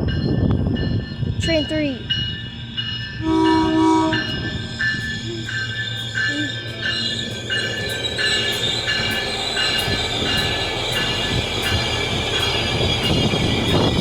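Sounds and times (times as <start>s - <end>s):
diesel train rumble: 0.0s - 14.0s
level-crossing bell dinging: 0.0s - 14.0s
wheel and brake squeal: 2.6s - 14.0s.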